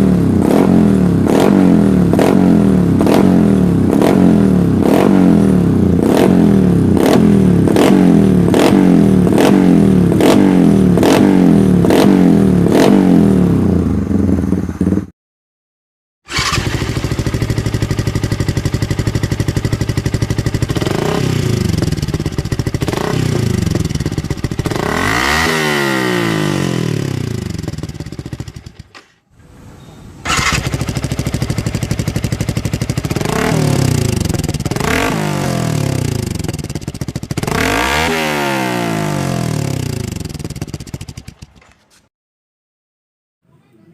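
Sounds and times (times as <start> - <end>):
motorcycle idling with revs: 0.0 - 15.1, 16.3 - 28.9, 30.3 - 41.6
motorcycle throttle blips: 29.8 - 41.8.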